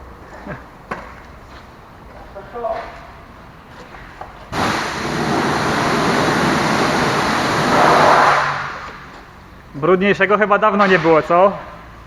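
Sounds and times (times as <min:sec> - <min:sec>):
pressure washer spraying water: 0:04.5 - 0:09.0.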